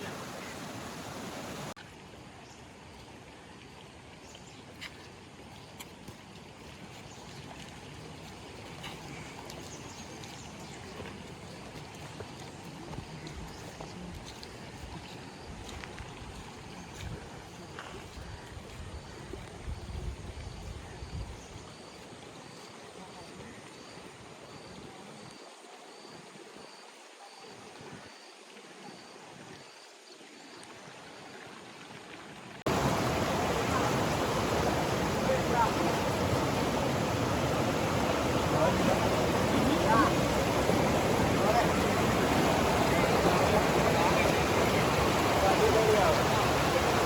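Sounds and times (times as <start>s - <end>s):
waterfall rushing: 0.0s - 1.8s, 32.7s - 47.0s
running water rushing: 0.0s - 47.0s.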